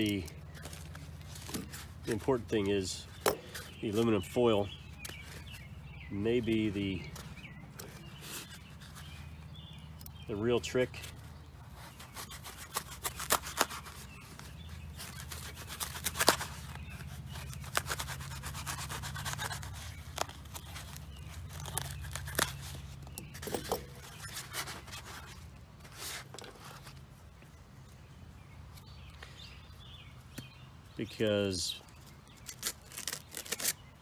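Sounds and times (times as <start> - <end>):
aluminum foil crinkling: 11.8 - 27.0, 32.0 - 34.0.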